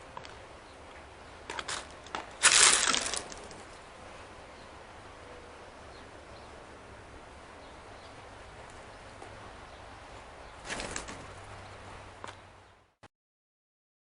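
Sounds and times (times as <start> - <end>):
outdoor air hiss: 0.0 - 13.0
bird wingbeats: 1.5 - 3.8, 10.6 - 12.5.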